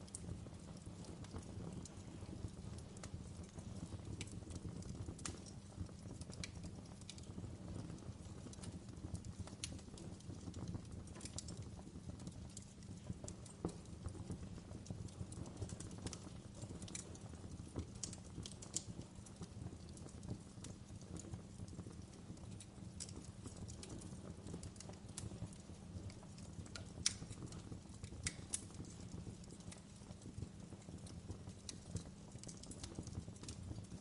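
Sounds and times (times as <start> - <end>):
fire crackling and popping: 0.0 - 34.0
low rush of flames: 0.0 - 34.0.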